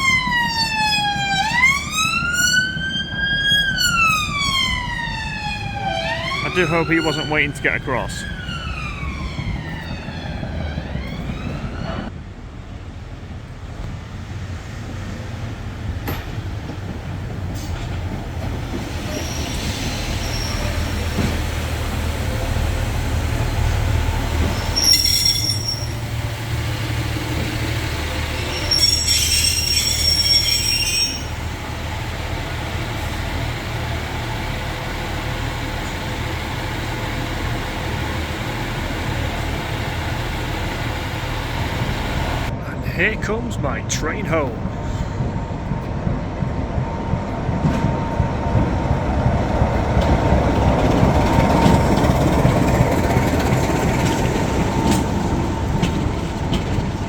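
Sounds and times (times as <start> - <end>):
diesel train rumbling past: 0.0 - 57.0
train wheels squealing: 18.7 - 21.5, 24.4 - 26.2, 28.0 - 31.6.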